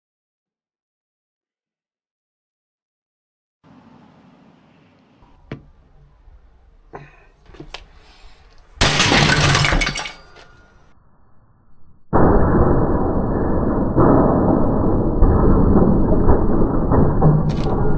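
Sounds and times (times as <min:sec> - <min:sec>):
appliance smashed with hammer: 0:05.3 - 0:10.8, 0:17.4 - 0:17.9.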